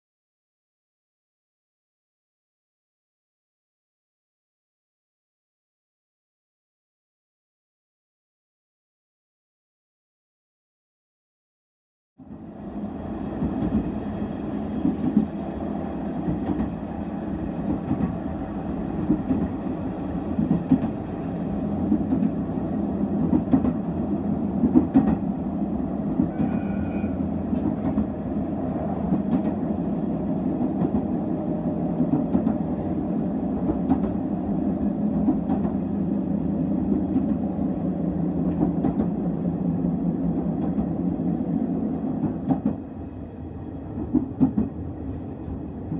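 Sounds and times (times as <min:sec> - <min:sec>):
diesel railcar rumbling: 0:12.2 - 0:45.9.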